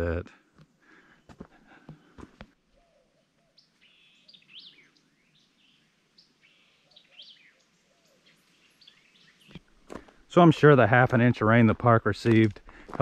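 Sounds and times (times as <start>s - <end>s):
faint songbird chirps and whistles: 2.7s - 9.6s.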